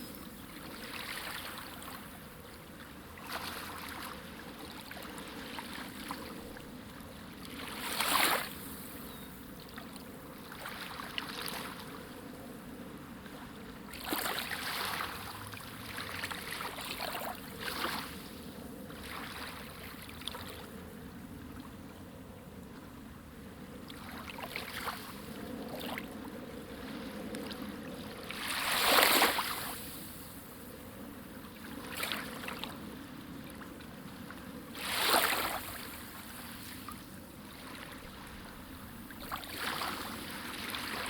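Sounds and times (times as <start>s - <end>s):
sea waves splashing: 13.4s - 20.5s, 24.0s - 41.0s.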